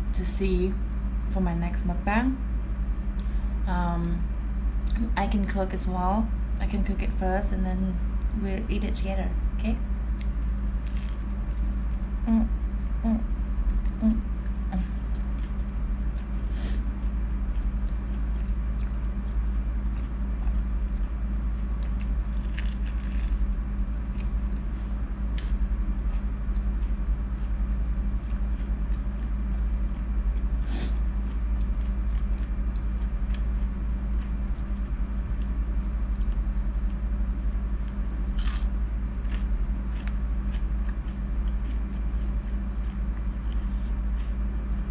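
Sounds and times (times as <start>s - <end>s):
low hum: 0.0s - 44.9s
chewing fried food: 10.1s - 12.2s, 13.6s - 44.9s.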